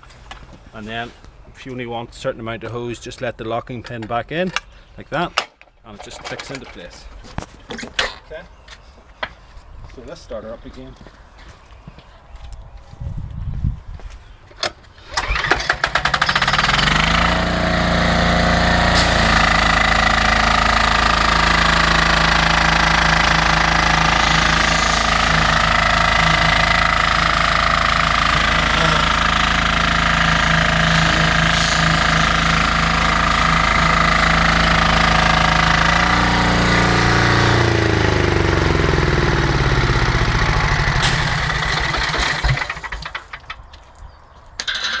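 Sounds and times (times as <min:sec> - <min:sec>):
diesel engine clattering: 0:15.2 - 0:43.5.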